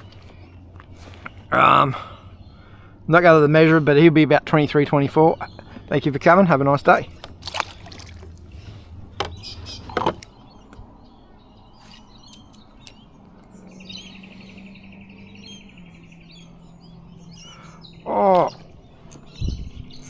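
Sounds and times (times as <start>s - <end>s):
birds chirping: 0.0s - 20.0s
fast pulsing bird trill: 8.7s - 20.0s
sharp knocks: 9.2s - 10.3s.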